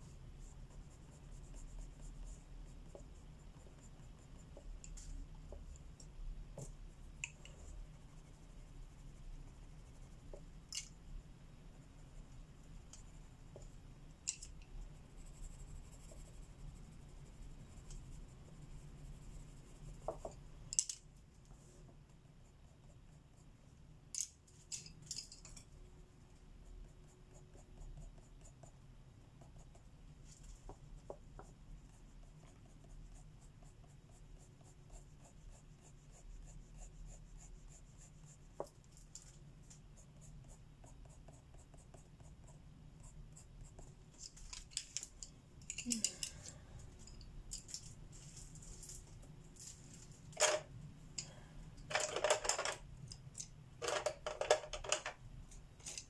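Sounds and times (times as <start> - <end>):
pencil scratching on paper: 0.3 - 4.8, 6.6 - 10.5, 14.9 - 20.4, 26.4 - 28.8, 29.4 - 29.9, 30.6 - 38.8, 39.9 - 43.9.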